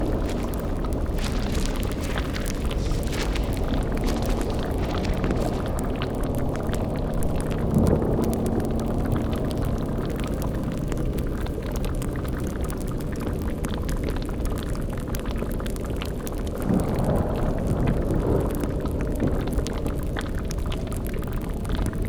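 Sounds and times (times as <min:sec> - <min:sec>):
low rumbling drone: 0:00.0 - 0:12.6
cauldron bubbling: 0:00.0 - 0:22.0
fire crackling: 0:00.0 - 0:22.0.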